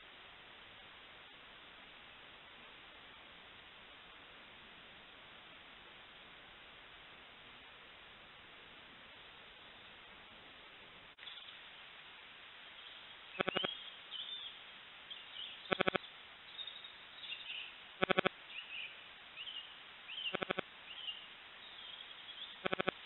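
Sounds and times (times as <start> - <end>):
small birds chirping: 12.6 - 23.0.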